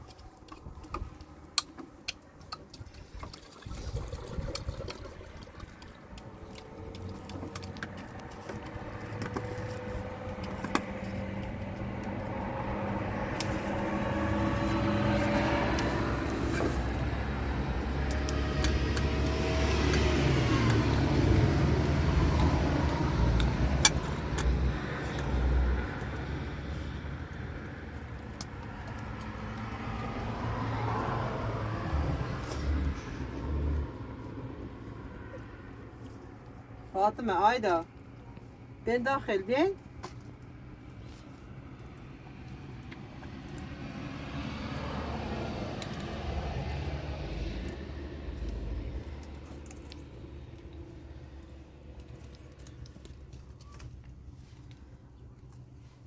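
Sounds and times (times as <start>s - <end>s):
vehicle engine running: 6.7s - 36.7s.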